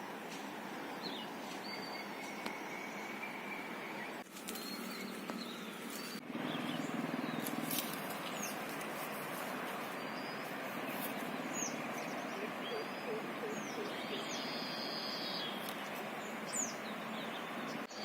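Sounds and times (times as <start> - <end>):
steady background hiss: 0.0 - 18.0
high bird chirps: 9.8 - 18.0.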